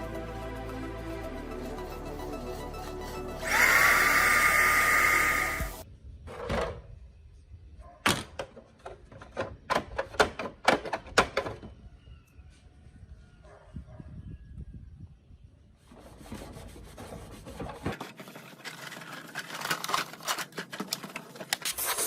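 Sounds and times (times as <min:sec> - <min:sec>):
electric power tool whine: 0:03.4 - 0:05.8.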